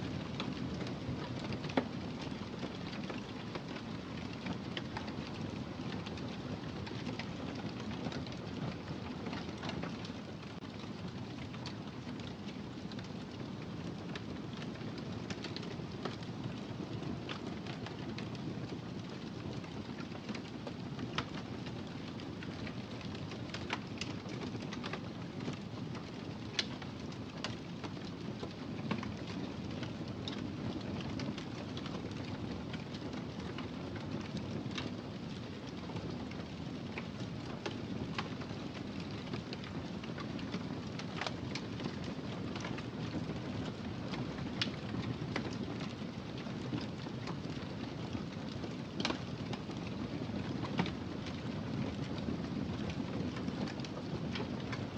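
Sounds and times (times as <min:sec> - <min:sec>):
wood fire crackling: 0:00.1 - 0:54.9.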